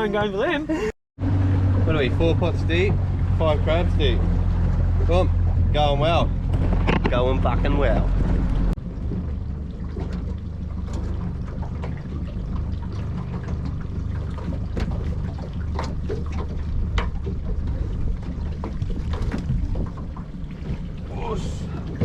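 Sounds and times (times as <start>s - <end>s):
boat motor idling: 0.0s - 22.0s
sharp clicks and knocks: 6.5s - 7.4s.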